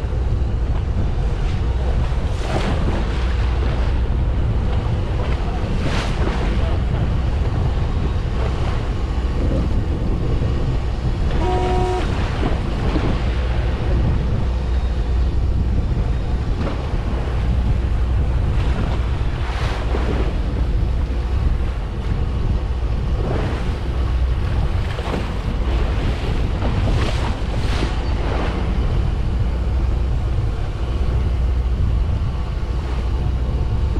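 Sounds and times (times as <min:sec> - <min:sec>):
boat engine rumble: 0:00.0 - 0:33.9
sea noise washing: 0:00.0 - 0:33.9
wind buffeting microphone: 0:00.0 - 0:33.9
brief tone: 0:11.3 - 0:12.2.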